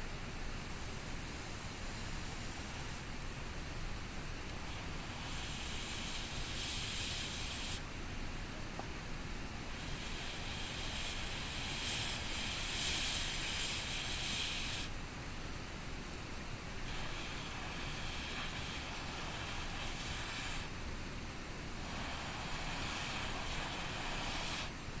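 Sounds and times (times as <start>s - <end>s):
campfire burning with hiss: 0.0s - 25.0s.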